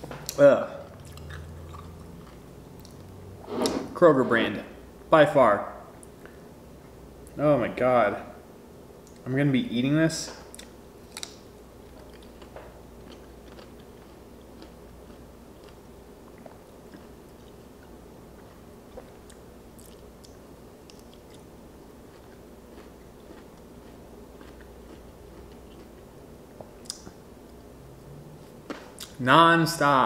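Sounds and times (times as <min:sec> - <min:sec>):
low steady hum: 0:00.0 - 0:30.0
biting crunchy pickles: 0:00.2 - 0:03.1, 0:10.5 - 0:29.2.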